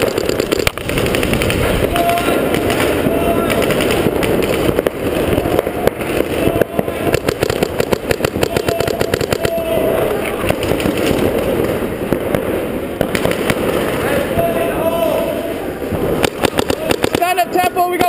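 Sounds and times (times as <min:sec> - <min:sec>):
paintball markers firing: 0:00.0 - 0:11.8, 0:16.2 - 0:17.4.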